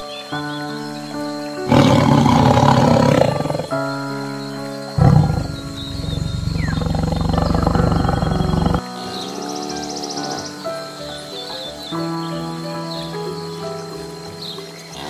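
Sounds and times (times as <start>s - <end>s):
soft background music: 0.0s - 15.0s
big cat growling: 1.7s - 3.8s, 4.9s - 10.5s.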